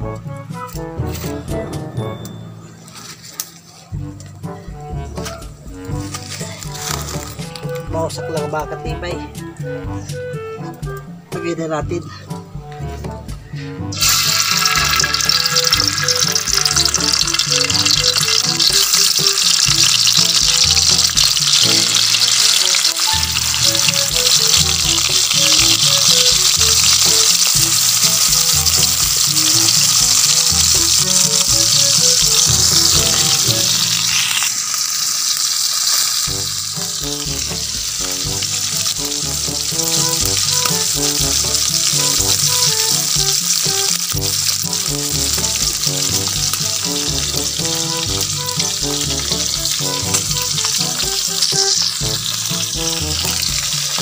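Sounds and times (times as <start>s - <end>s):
background music with bass: 0.0s - 34.4s, 36.2s - 54.0s
deep-frying sizzle in oil: 5.3s - 7.9s, 13.9s - 54.0s.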